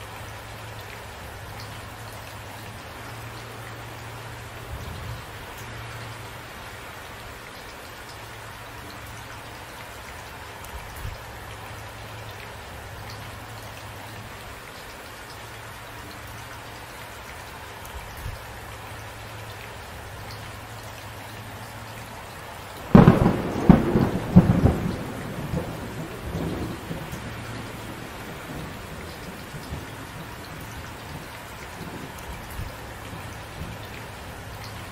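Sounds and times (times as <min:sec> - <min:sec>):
steady rain falling: 0:00.0 - 0:34.9
thunderclap cracking and rumbling: 0:22.9 - 0:33.8.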